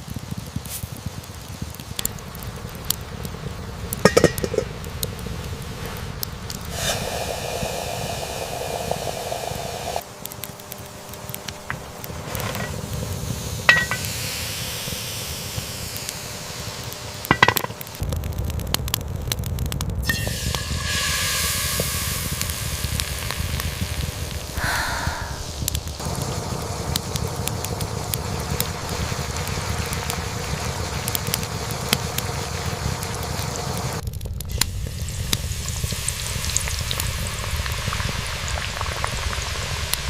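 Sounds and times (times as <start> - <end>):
food sizzling in a pot: 0.5 - 18.1, 20.0 - 40.0
utensil clinking against pot: 4.1 - 4.7, 13.7 - 14.1.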